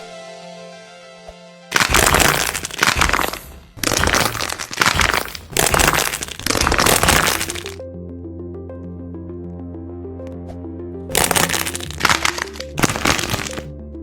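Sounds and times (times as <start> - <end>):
background music: 0.0 - 14.0
wax coating cracking on foam toys: 1.7 - 7.8, 11.1 - 13.6.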